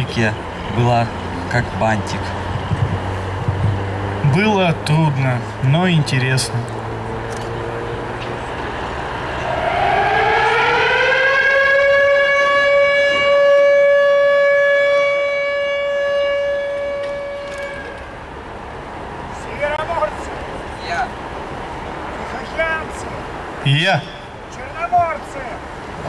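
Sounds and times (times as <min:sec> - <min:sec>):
siren winding up: 0:09.3 - 0:13.2.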